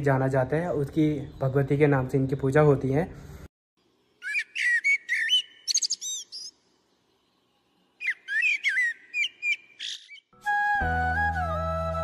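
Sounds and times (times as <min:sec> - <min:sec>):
bird whistled chirps: 0:04.2 - 0:06.6, 0:08.0 - 0:10.4.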